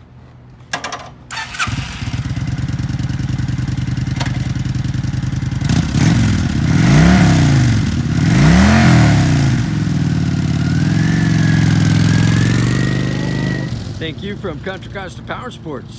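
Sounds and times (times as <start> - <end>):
motorcycle starter cranking: 0.8 - 6.4
motorcycle engine idling and revving: 1.3 - 15.9.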